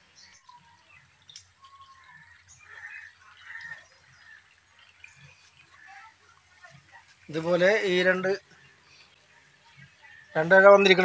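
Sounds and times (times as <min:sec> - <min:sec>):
faint bird chirps: 0:00.0 - 0:07.4.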